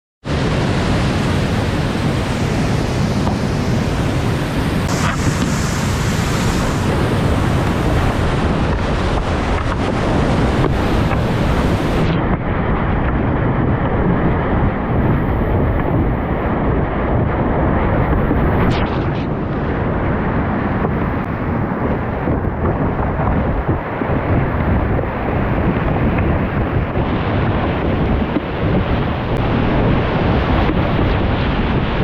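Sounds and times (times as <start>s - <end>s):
river water rushing: 0.3s - 12.1s
wind buffeting microphone: 0.3s - 32.0s.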